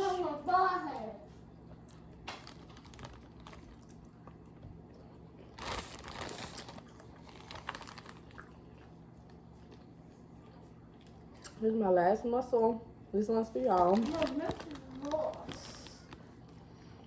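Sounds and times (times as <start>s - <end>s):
seafood shells cracking: 5.6s - 8.6s.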